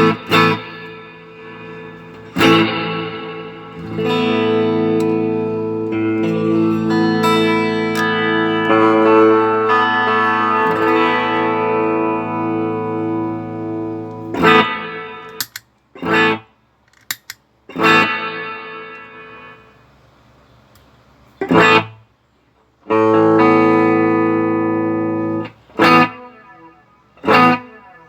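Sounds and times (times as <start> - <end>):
electric guitar chords with reverb: 0.0 - 15.4, 17.7 - 19.6, 22.9 - 28.0
sharp guitar chord stabs: 0.0 - 15.4.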